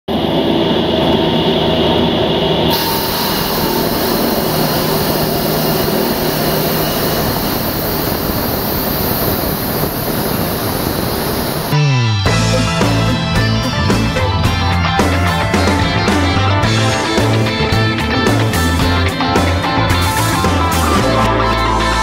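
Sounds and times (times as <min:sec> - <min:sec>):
concrete saw cutting concrete: 0:02.7 - 0:11.8.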